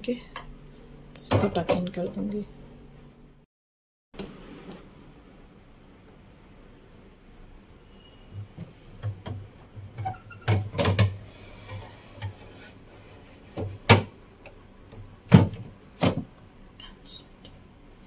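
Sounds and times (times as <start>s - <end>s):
scraping slide: 11.2s - 13.7s.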